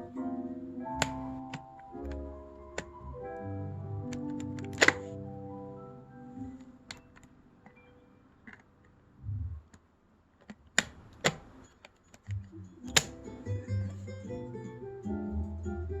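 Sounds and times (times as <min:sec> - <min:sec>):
sharp plastic clicks: 0:01.0 - 0:03.0, 0:10.4 - 0:13.2.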